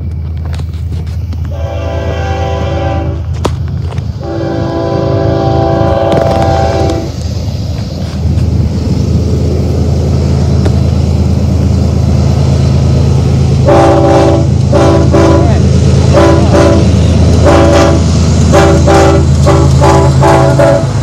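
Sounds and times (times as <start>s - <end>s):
diesel engines rumbling: 0.0s - 21.0s
locomotive horn chord: 1.5s - 3.3s, 4.2s - 7.1s, 13.6s - 21.0s.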